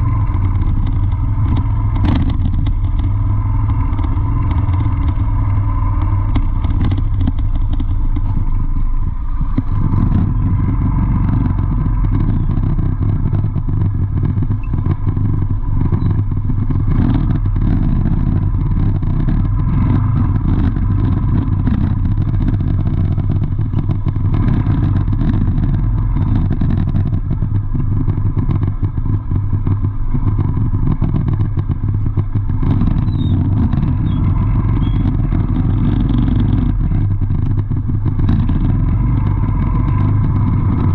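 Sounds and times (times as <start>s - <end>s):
clatter: 0.0s - 40.9s
traffic engines rumbling: 0.0s - 40.9s.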